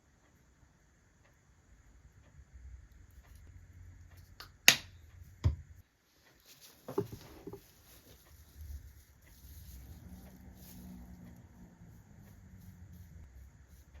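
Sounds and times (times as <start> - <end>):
rustling and handling noise: 5.9 - 14.0.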